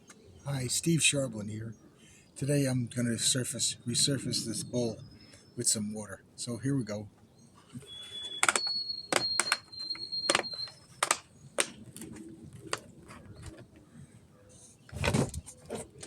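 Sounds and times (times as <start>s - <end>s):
faint high steady tone: 7.7s - 11.0s
objects clicking and knocking: 8.3s - 13.6s
scraping rustle: 14.8s - 16.0s.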